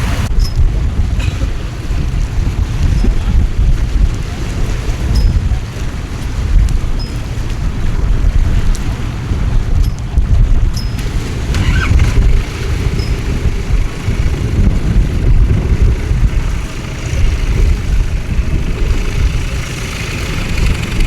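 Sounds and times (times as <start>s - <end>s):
wind buffeting microphone: 0.0s - 21.0s
heavy rain hiss: 11.2s - 21.0s.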